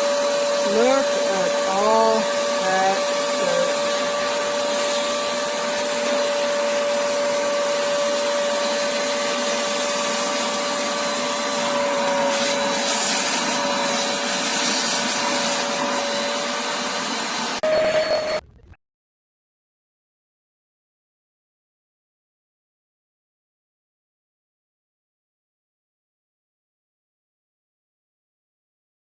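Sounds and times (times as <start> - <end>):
spot cleaner suction motor whine: 0.0 - 18.5
nozzle sucking at carpet: 0.2 - 18.2.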